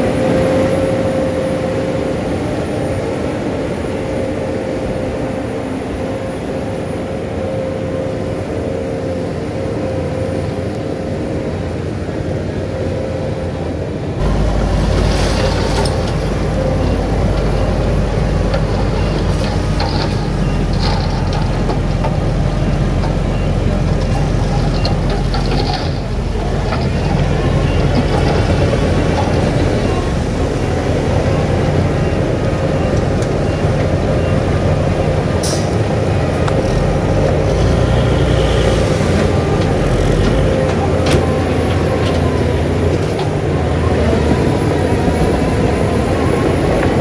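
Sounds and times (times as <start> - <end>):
heavy diesel machinery running: 14.1 - 47.0
clatter: 14.2 - 30.8.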